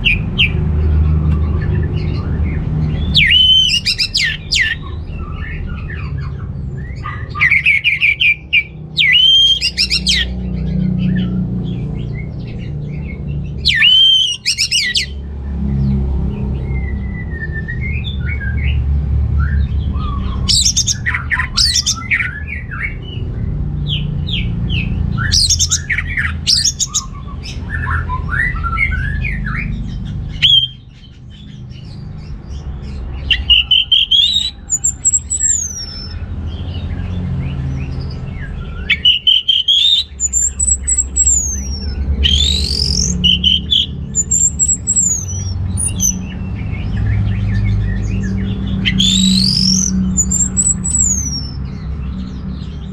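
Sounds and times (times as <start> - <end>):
thrush singing: 0.0 - 15.3, 24.3 - 30.9, 32.9 - 36.5, 37.7 - 51.6.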